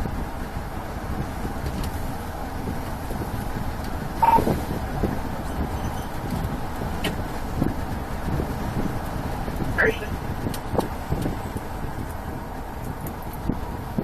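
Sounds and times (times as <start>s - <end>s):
vehicle engine rumbling: 0.0s - 14.0s
short beep: 4.2s - 4.5s.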